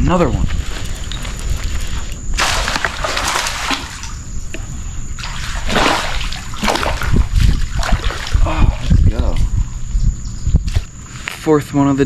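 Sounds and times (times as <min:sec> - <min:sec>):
fish splashing in water: 0:00.6 - 0:08.9.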